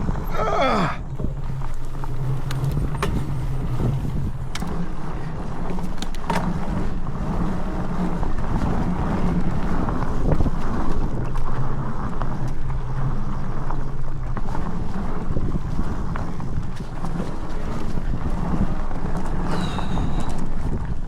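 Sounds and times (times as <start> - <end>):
bike clicks and rattles: 0.0 - 21.0
fat tyres rumbling on dirt: 0.0 - 21.0
wind on microphone: 0.0 - 21.0.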